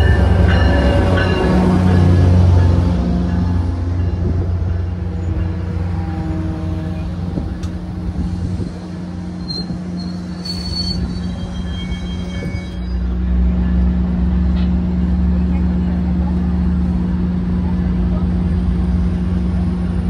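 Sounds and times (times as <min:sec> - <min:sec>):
train rumbling: 0:00.0 - 0:20.0
high-pitched squeals: 0:08.6 - 0:13.2.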